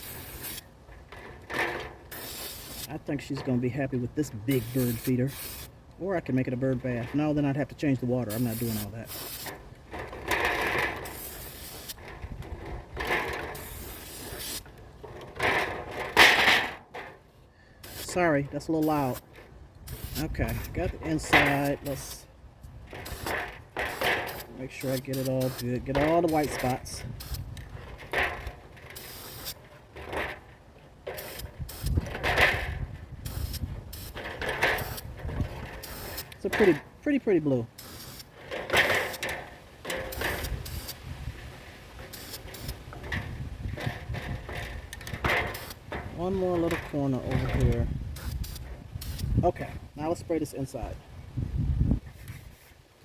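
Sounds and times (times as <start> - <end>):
spray can hissing: 0.0 - 0.6, 2.1 - 2.9, 4.6 - 5.7, 8.4 - 9.5, 11.0 - 12.0, 13.6 - 14.6, 17.8 - 18.2, 19.9 - 20.7, 23.0 - 23.3, 23.9 - 25.6, 26.4 - 27.4, 29.0 - 29.6, 31.2 - 32.0, 35.8 - 36.3, 37.8 - 38.3, 40.1 - 41.0, 42.1 - 42.8, 48.2 - 49.3
wind on microphone: 31.4 - 36.1, 40.1 - 41.7, 42.4 - 52.7.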